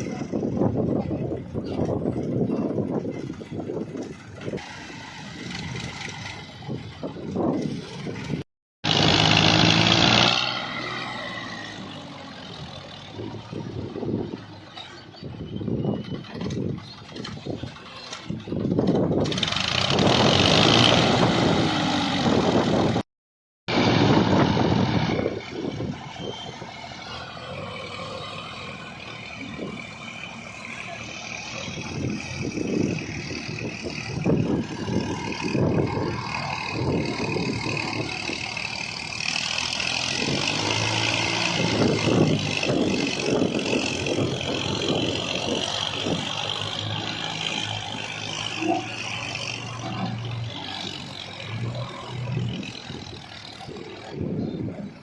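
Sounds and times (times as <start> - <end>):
heavy machinery diesel engines: 0.0 - 23.0, 23.7 - 55.0.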